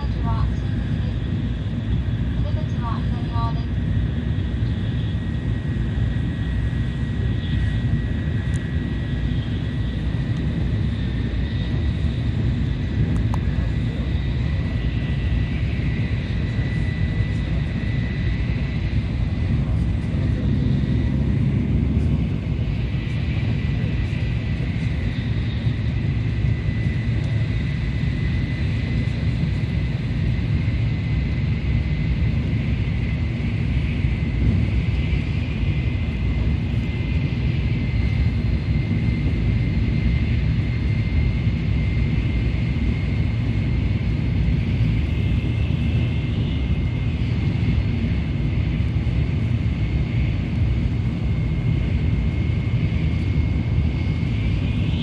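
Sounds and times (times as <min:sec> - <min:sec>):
train running at speed: 0:00.0 - 0:55.0.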